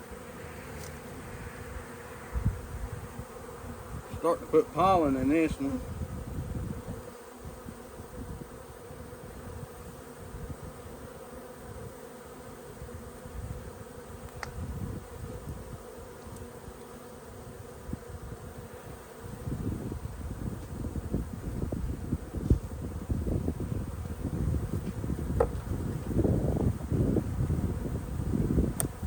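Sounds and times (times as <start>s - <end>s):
bees buzzing: 0.0s - 29.0s.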